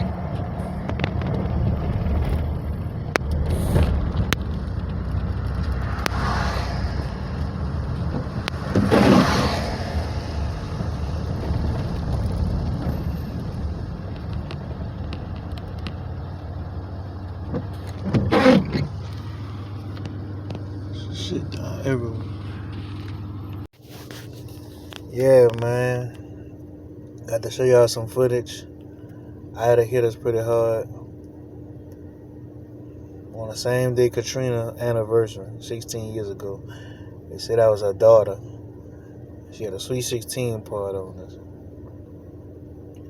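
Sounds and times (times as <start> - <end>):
car road and engine rumble: 0.0 - 43.0.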